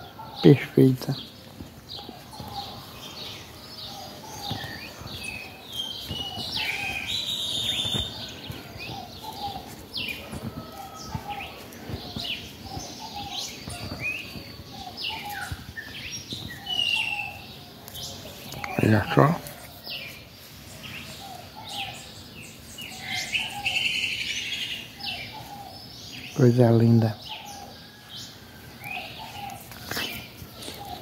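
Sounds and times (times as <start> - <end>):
birds chirping and calling: 0.0 - 31.0.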